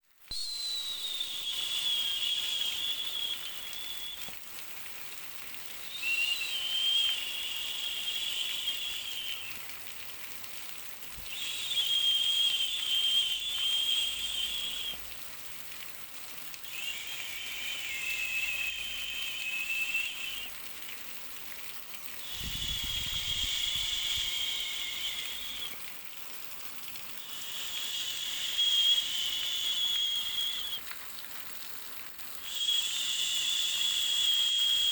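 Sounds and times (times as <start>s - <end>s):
high wavering whistle-like tone: 0.3s - 4.3s, 5.8s - 9.6s, 11.3s - 15.0s, 16.7s - 20.5s, 22.2s - 25.8s, 27.2s - 30.8s, 32.5s - 34.9s.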